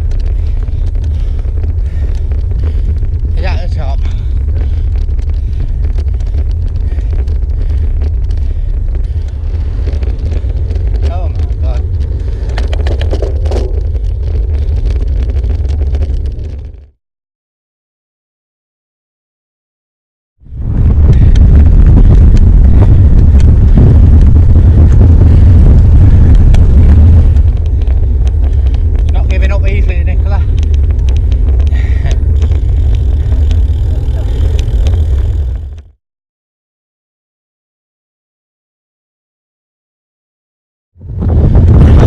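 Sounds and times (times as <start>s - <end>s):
wind buffeting microphone: 0.0s - 16.9s, 20.4s - 35.9s, 41.0s - 42.0s.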